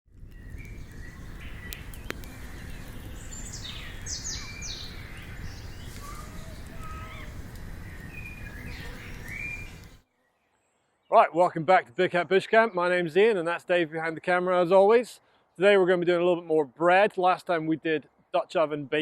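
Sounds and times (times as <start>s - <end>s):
birds singing and chirping: 0.2s - 13.2s.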